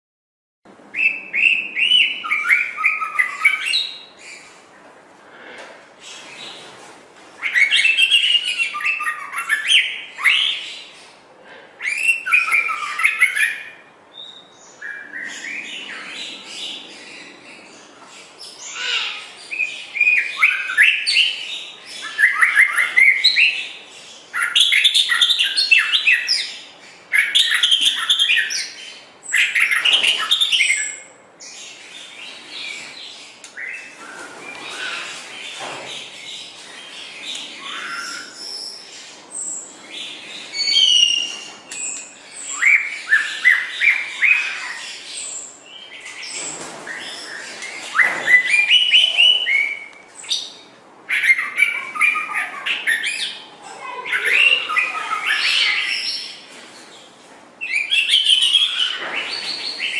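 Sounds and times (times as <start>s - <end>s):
bird singing whistles and trills: 1.0s - 4.1s, 19.5s - 23.7s, 40.5s - 44.6s, 47.0s - 53.4s.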